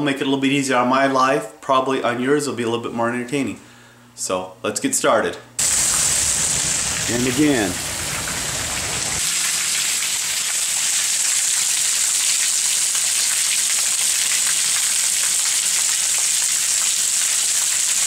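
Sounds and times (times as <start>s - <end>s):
rain on gravel: 5.6s - 18.0s
water dripping into puddles: 5.6s - 18.0s.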